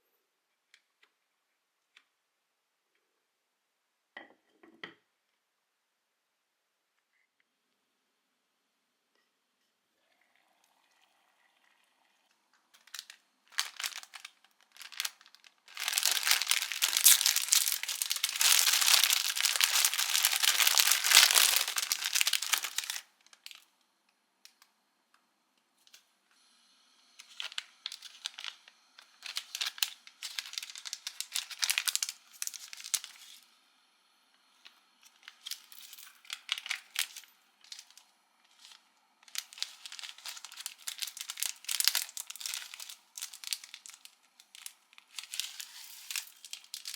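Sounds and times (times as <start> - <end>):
plastic packets crinkling: 12.7 - 23.7, 27.2 - 33.5, 34.6 - 46.9.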